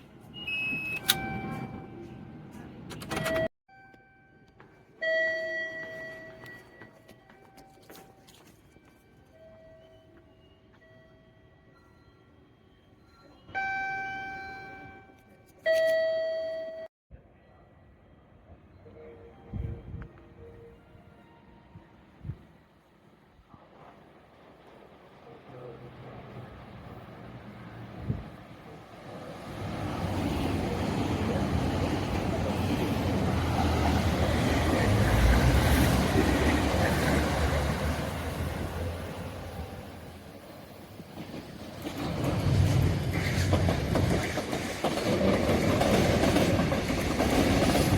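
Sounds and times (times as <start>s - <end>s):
train passing close by: 18.3s - 47.9s.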